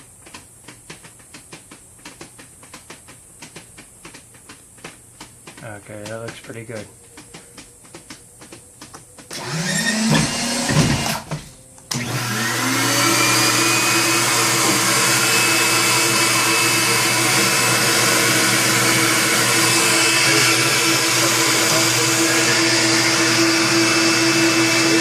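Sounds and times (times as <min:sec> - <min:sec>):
vacuum motor whining: 0:07.2 - 0:25.0.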